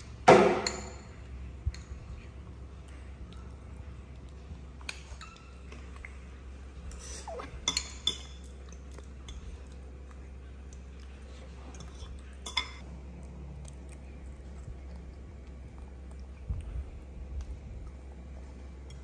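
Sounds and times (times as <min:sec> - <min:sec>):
spoons clinking against bowls: 0:06.9 - 0:09.4, 0:11.7 - 0:12.8.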